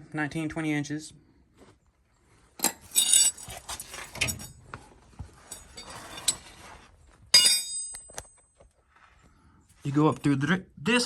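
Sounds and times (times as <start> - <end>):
metal wrenches clinking: 2.6 - 4.6, 5.4 - 6.6, 7.3 - 8.3.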